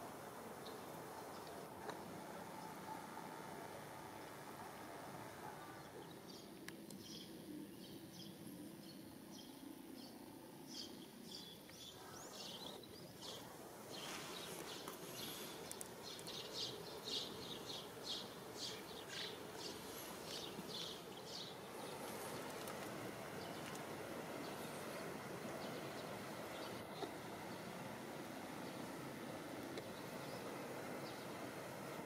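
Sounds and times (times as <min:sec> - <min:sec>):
steady background hiss: 0:00.0 - 0:32.0
small birds chirping: 0:05.5 - 0:27.8, 0:28.5 - 0:31.6.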